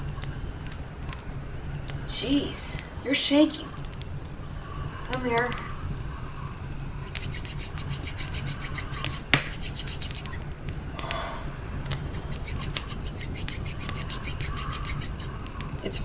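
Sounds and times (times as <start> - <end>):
campfire crackling and popping: 0.0 - 16.0
hands rubbing together: 7.0 - 10.4, 11.9 - 15.4.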